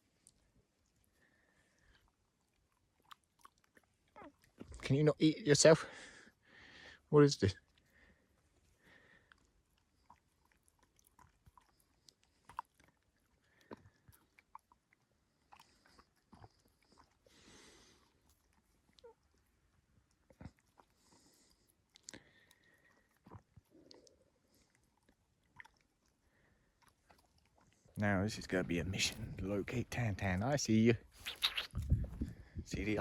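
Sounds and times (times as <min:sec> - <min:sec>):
dog crunching food: 0:09.2 - 0:28.0.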